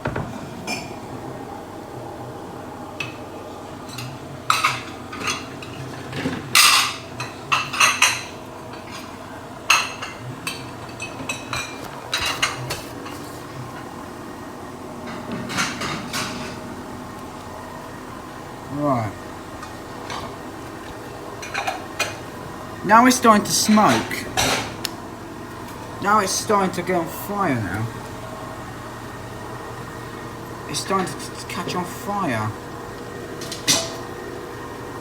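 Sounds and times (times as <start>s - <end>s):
washing machine humming: 0.0s - 35.0s
crockery and cutlery clinking: 33.4s - 34.2s.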